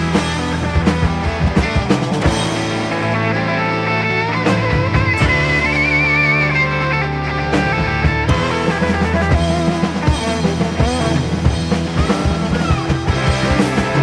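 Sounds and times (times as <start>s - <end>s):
bass guitar: 0.0s - 14.0s
drum kit beat: 0.0s - 14.0s
electric guitar lead: 0.0s - 14.0s.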